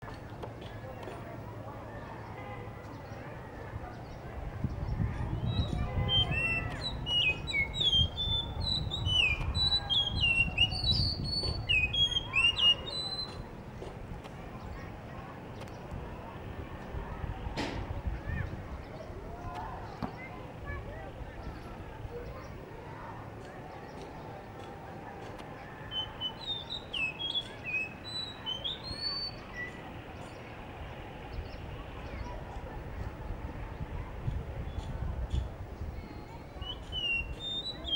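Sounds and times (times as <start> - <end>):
thrush whistling song: 5.3 - 13.4, 25.8 - 30.4, 35.3 - 37.9.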